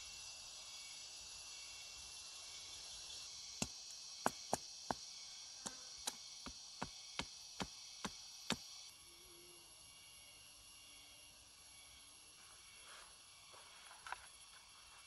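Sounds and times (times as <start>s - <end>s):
insects chirping: 0.0s - 15.0s
tool chopping into wood: 5.6s - 8.7s.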